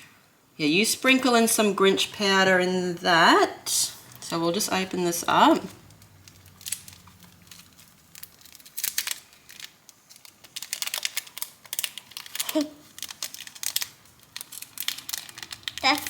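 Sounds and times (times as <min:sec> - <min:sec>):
packet crinkling and tearing: 0:05.3 - 0:16.0.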